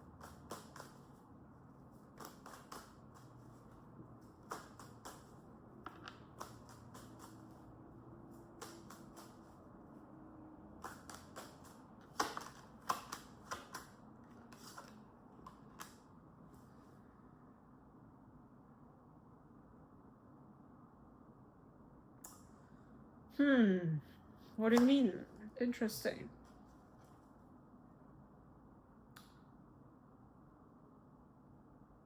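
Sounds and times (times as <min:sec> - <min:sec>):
cards being shuffled: 0:02.0 - 0:07.6, 0:08.3 - 0:09.6, 0:10.8 - 0:16.0.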